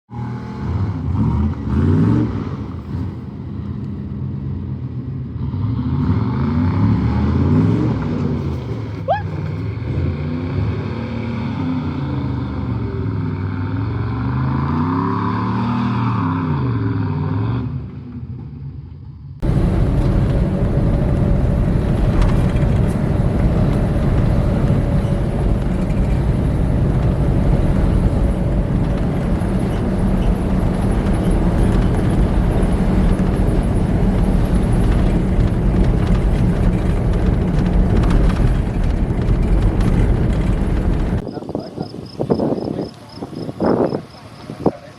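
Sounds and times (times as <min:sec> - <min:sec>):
engine droning while driving: 0:00.1 - 0:44.9
truck engines revving: 0:00.1 - 0:44.9.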